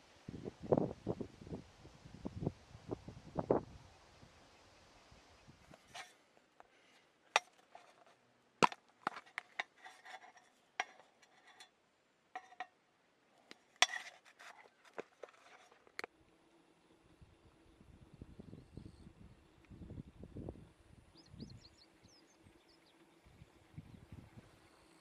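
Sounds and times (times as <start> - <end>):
small hard objects clicking and knocking: 7.4 - 11.7, 12.4 - 12.7, 13.5 - 16.1.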